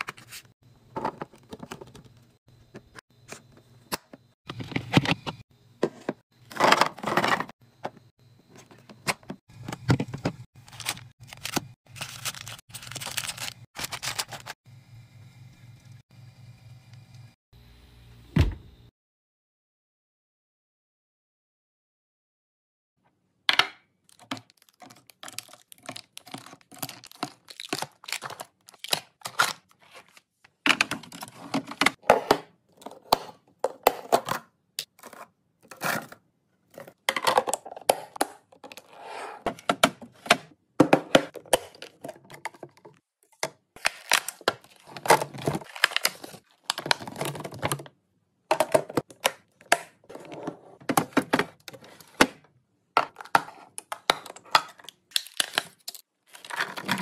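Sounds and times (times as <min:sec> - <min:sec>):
plastic packaging crinkling: 0:10.6 - 0:14.6, 0:24.1 - 0:30.2, 0:43.8 - 0:47.8, 0:54.7 - 0:57.0.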